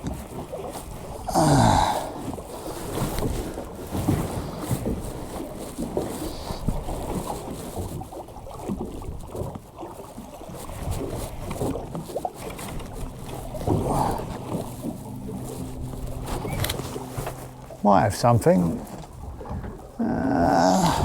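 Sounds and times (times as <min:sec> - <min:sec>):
water slapping boat hull: 0:00.0 - 0:21.0
wind buffeting microphone: 0:10.5 - 0:21.0
low steady hum: 0:12.4 - 0:21.0.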